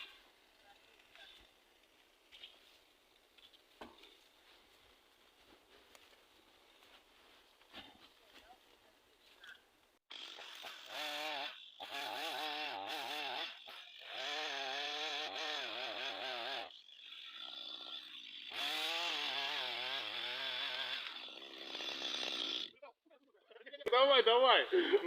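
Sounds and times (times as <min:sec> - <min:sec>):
chainsaw cutting wood: 0:10.1 - 0:22.8.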